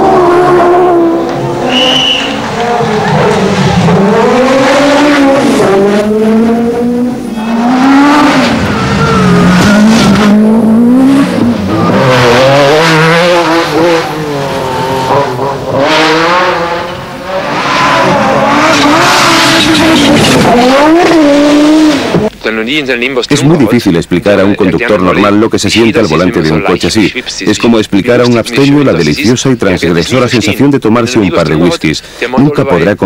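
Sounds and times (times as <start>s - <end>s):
rally car engine revving: 0.0s - 22.3s.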